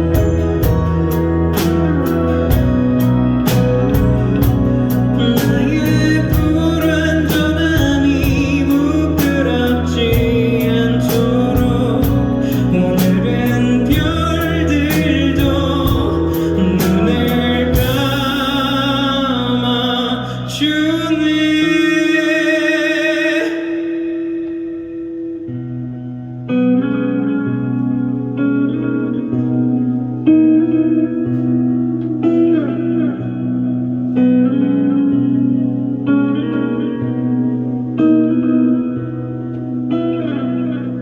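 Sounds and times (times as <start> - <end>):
drums hitting: 0.0 - 9.4, 14.9 - 18.5
rock band playing live: 0.0 - 41.0
cymbal wash: 23.4 - 26.3.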